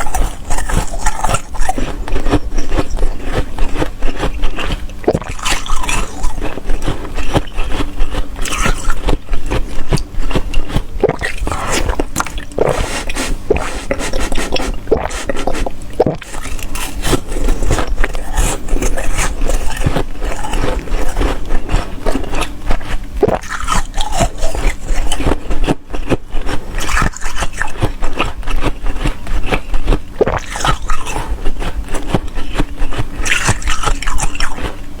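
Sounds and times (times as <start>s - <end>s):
wet slurping: 0.0s - 22.5s
ice crunching while chewed: 0.0s - 35.0s.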